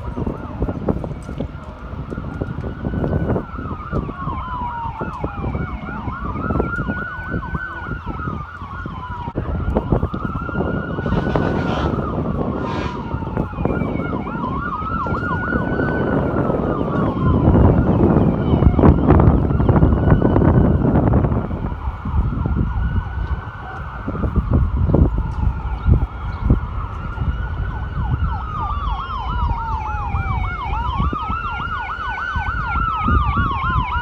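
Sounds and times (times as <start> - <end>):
emergency siren wailing: 0.0 - 34.0
fast warbling siren tone: 10.8 - 14.8
low rumble: 11.0 - 13.8
short hissing bursts: 12.6 - 13.2.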